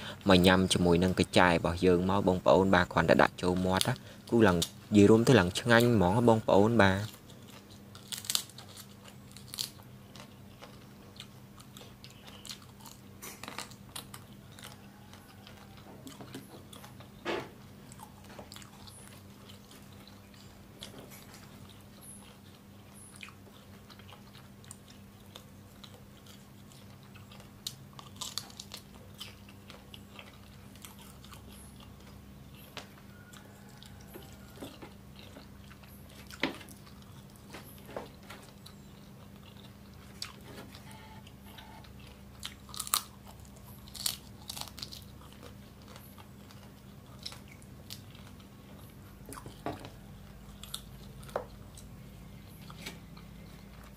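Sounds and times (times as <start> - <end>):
quiet chewing: 0.0 - 53.9
beetle shells crunching: 0.2 - 23.4, 41.6 - 53.9.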